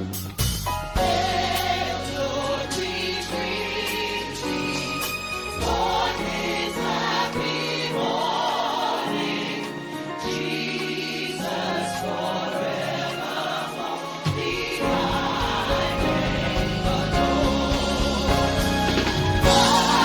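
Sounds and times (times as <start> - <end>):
instrumental accompaniment: 0.0 - 20.0
choir singing: 0.8 - 20.0.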